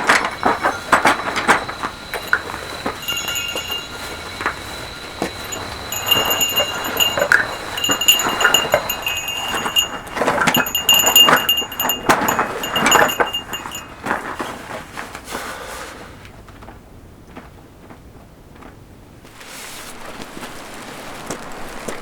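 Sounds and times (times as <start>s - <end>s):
small metal bell jingling: 0.0s - 14.6s.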